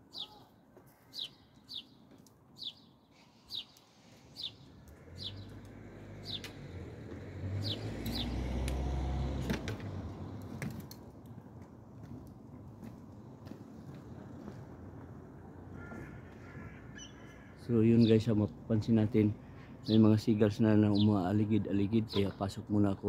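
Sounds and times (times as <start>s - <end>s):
small bird chirping: 1.1s - 6.6s
vehicle passing rumble: 3.2s - 16.6s.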